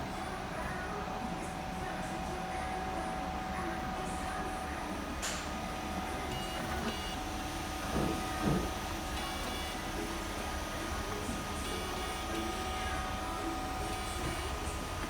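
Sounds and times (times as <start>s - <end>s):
printer fan humming: 0.0s - 15.0s.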